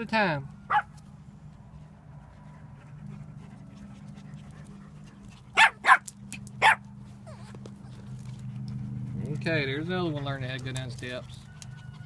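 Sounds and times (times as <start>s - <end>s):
dog barking: 0.7s - 0.9s, 5.6s - 6.0s, 6.6s - 6.8s.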